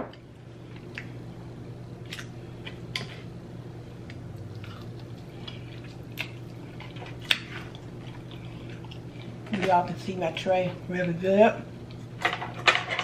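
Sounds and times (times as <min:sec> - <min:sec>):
steady low hum: 0:00.0 - 0:13.0
soft chewing: 0:03.9 - 0:09.7.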